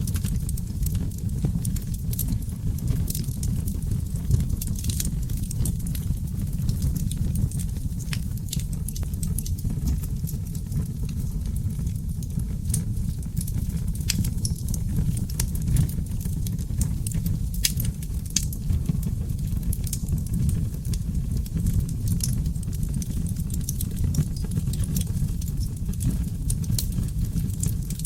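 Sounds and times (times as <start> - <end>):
low rumble of flames: 0.0 - 28.0
sharp pops from fire: 0.0 - 28.0.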